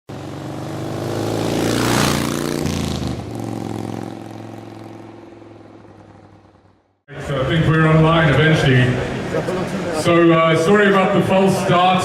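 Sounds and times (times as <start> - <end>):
engine: 0.1 - 7.0.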